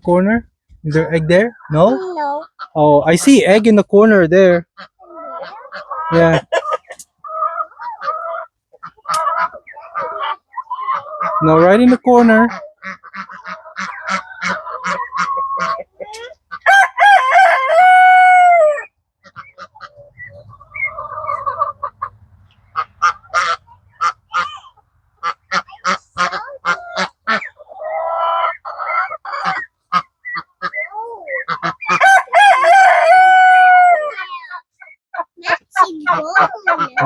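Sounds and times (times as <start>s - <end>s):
chickens clucking: 0.0s - 37.0s
rooster crowing: 16.7s - 18.9s, 32.0s - 34.2s.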